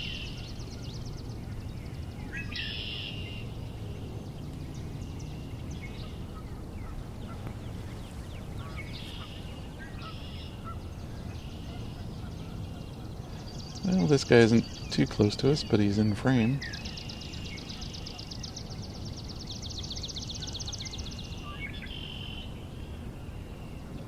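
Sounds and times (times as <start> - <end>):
low background rumble: 0.0 - 21.9
blackbirds singing: 0.0 - 24.0
short bird calls: 2.2 - 3.5, 8.6 - 18.8.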